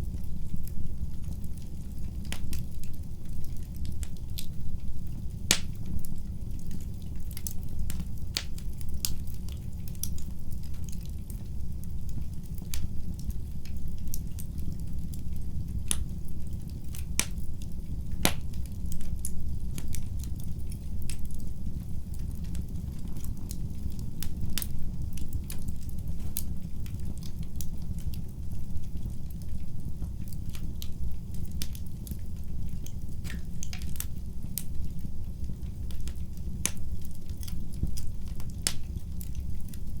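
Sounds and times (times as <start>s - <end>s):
fire crackling and popping: 0.0s - 40.0s
low rumble of flames: 0.0s - 40.0s.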